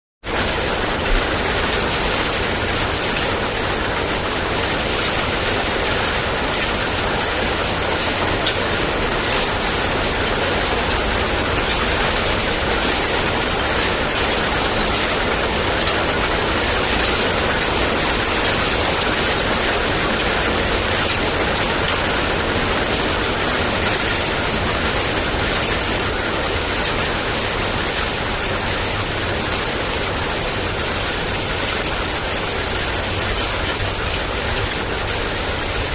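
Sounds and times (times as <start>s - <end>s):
heavy rain downpour: 0.2s - 35.9s.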